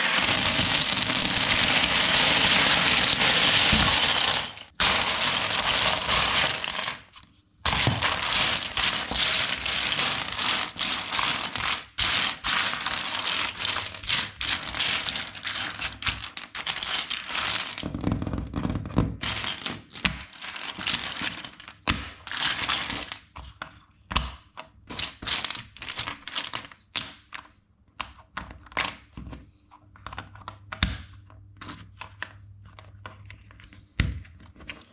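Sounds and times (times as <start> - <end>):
plastic bricks clattering: 0.0 - 7.1, 7.7 - 18.0, 19.2 - 23.2.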